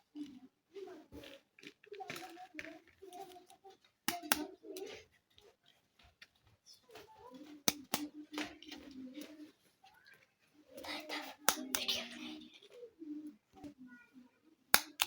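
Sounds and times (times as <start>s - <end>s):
plastic toy pieces tapping and rustling: 0.1s - 12.8s, 14.7s - 15.0s
sharp plastic clicks: 1.6s - 5.0s, 7.6s - 9.4s, 10.8s - 12.2s, 14.7s - 15.0s.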